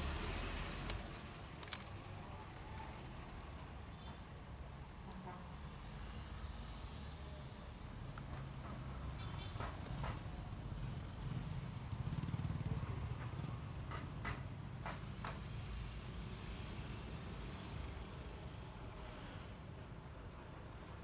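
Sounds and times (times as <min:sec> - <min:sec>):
scooter engine and road rumble: 0:09.4 - 0:15.7.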